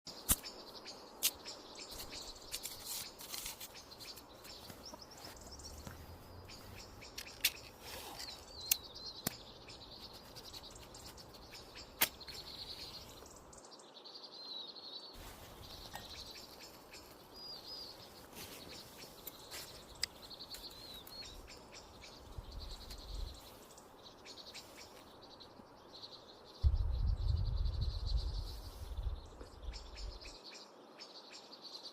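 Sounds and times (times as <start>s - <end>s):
birds chirping and singing: 0.1s - 31.9s
loud low rumble: 26.6s - 28.4s.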